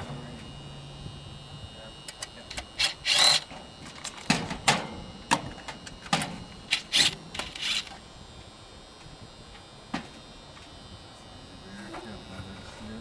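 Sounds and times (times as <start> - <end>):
wires and parts clicking: 2.1 - 4.4, 5.8 - 8.0.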